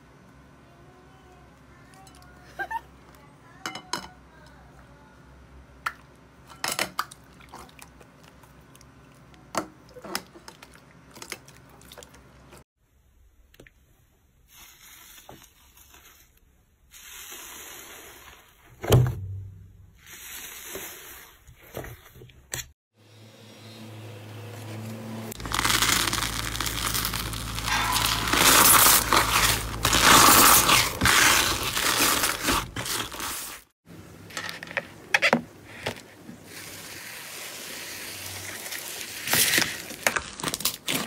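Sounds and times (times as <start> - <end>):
loud thump: 18.8 - 19.8.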